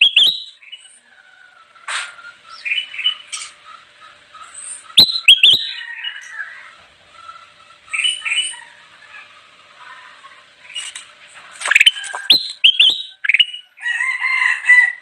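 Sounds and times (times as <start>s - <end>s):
bird chirping and whistling: 0.0s - 0.6s, 5.0s - 5.8s, 11.6s - 13.7s.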